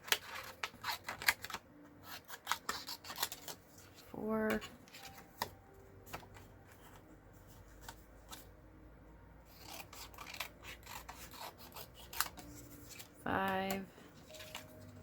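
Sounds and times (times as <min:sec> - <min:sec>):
cardstock being cut by hand: 0:00.0 - 0:03.9, 0:09.5 - 0:15.0.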